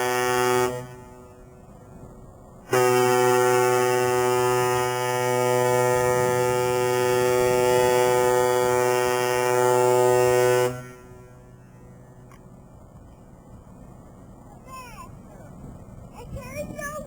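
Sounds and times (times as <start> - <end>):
ship horn long blast: 0.0 - 12.3.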